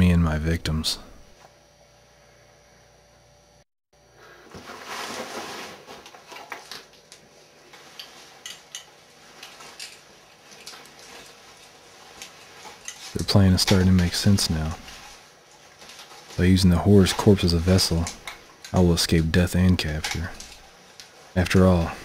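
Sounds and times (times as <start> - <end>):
rustling with clicks and taps: 4.5 - 21.9.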